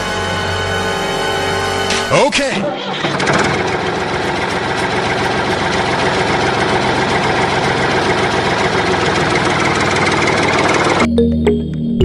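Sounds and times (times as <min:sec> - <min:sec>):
engine idling: 0:02.8 - 0:11.1.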